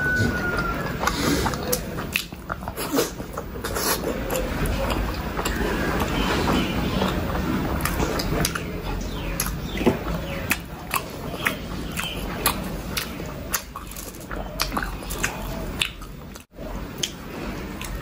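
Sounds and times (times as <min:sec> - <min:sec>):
wet chewing with mouth smacks: 0:00.0 - 0:18.0.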